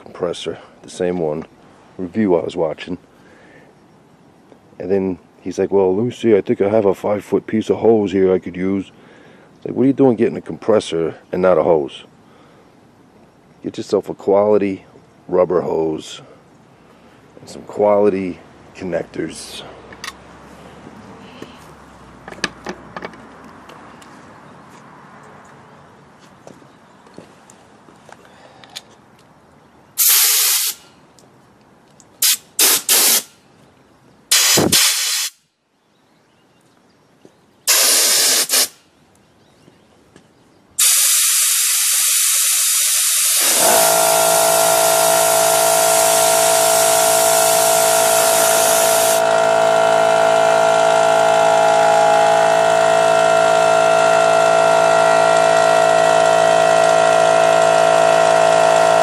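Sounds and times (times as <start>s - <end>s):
air hissing out: 30.0s - 30.9s, 32.2s - 33.4s, 34.3s - 35.4s, 37.7s - 38.8s, 40.8s - 49.5s
compressed air blasts: 30.0s - 30.9s, 32.2s - 33.4s, 34.3s - 35.4s, 37.7s - 38.8s, 40.8s - 52.7s
air compressor motor humming: 40.8s - 59.0s.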